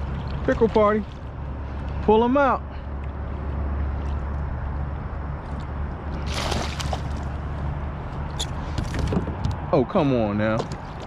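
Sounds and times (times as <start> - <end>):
fish splashing: 6.1 - 7.4.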